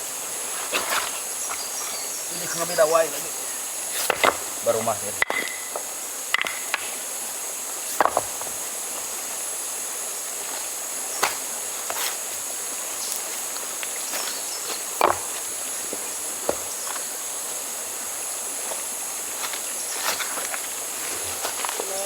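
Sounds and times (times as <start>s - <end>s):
insects chorus: 0.0s - 22.0s.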